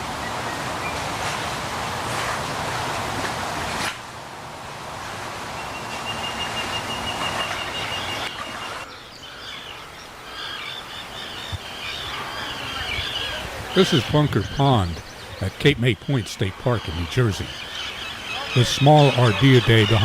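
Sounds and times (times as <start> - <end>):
birds chirping: 5.5 - 20.0.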